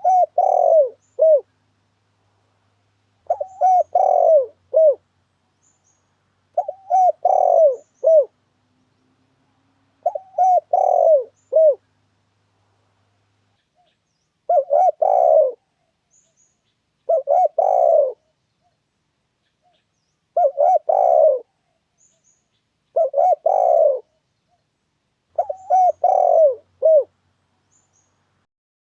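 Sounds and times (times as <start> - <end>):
dove cooing: 0.0 - 1.5, 3.2 - 5.0, 6.5 - 8.4, 10.0 - 11.9, 14.5 - 15.9, 17.0 - 18.3, 20.3 - 21.8, 22.9 - 24.2, 25.3 - 27.1.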